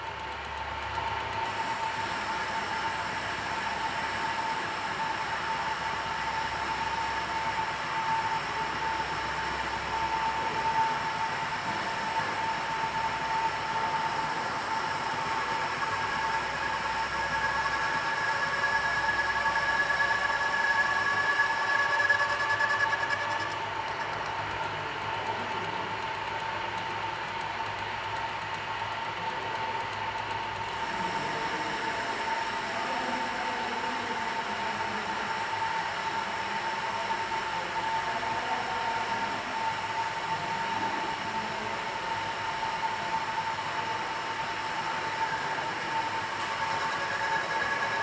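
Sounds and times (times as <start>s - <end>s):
lathe running with high whine: 0.1s - 48.0s
higher machine whine: 11.6s - 24.2s, 44.1s - 48.0s.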